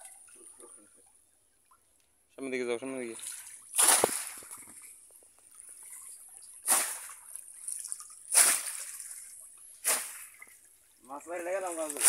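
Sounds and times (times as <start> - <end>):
water sloshing: 2.7 - 12.0
trap splashing into water: 3.2 - 4.9, 6.5 - 10.6.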